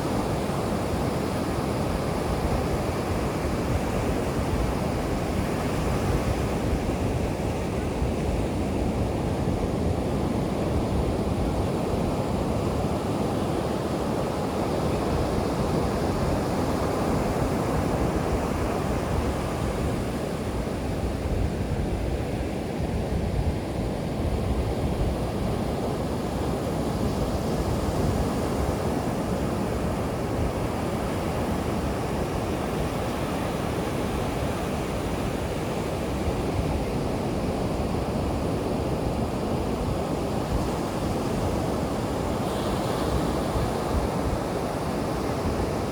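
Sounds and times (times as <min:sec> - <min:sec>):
waves breaking on beach: 0:24.9 - 0:45.9.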